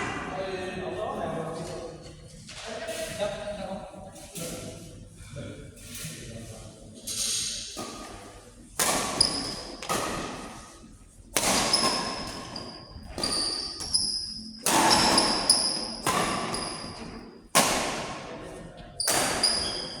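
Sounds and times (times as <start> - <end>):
racket hitting shuttlecock: 8.8 - 18.3, 19.0 - 20.0
sneakers squeaking on floor: 8.9 - 10.2, 11.6 - 17.2, 19.0 - 20.0.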